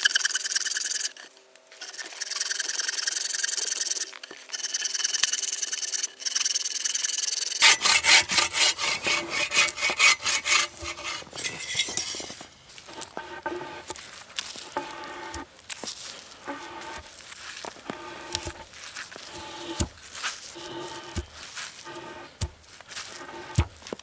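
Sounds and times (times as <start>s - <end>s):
hand saw rasping through wood: 7.3s - 14.0s, 14.6s - 15.5s, 16.2s - 23.8s.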